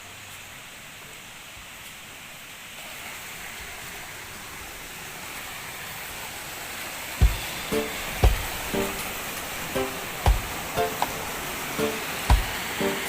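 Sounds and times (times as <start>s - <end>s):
waterfall roaring: 0.1s - 13.0s.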